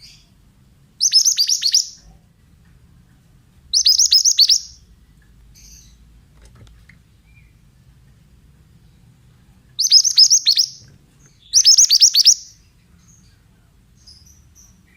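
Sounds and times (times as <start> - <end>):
bird singing whistled notes: 1.0 - 2.0, 3.7 - 4.9, 9.8 - 13.4
faint bird chirps: 1.0 - 2.3, 3.1 - 4.9, 8.8 - 14.9.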